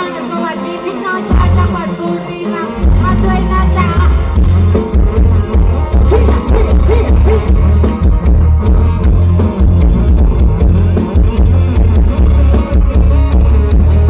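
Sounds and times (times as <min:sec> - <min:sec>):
loud band music with heavy bass: 0:00.0 - 0:14.0
steady drum beat: 0:04.4 - 0:14.0.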